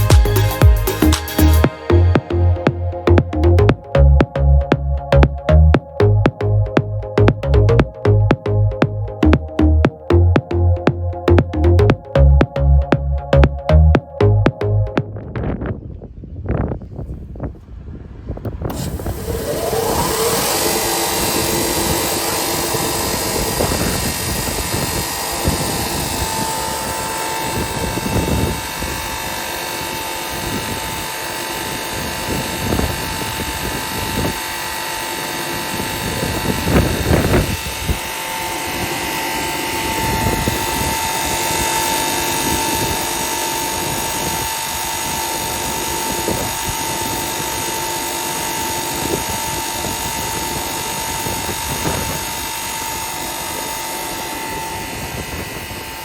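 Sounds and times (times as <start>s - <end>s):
sanding machine whining: 18.6s - 56.0s.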